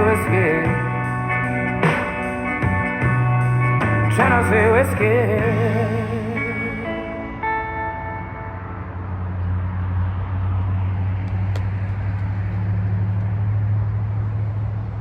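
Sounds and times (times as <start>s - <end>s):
low motor hum: 8.2s - 15.0s.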